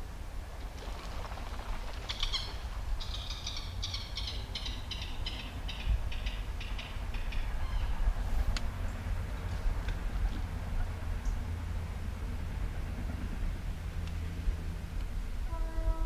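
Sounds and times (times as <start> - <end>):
bird calling harsh notes: 2.1 - 8.0.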